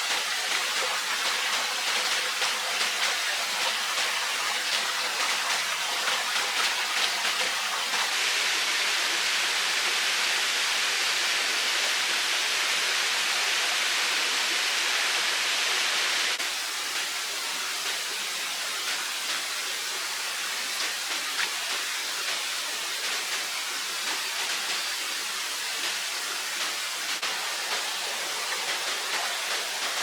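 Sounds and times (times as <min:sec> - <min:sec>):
running water rushing: 0:00.0 - 0:09.4, 0:16.4 - 0:30.0.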